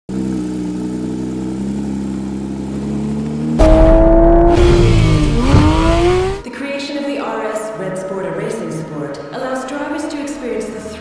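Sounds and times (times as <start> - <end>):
car engine accelerating: 0.1 - 6.4.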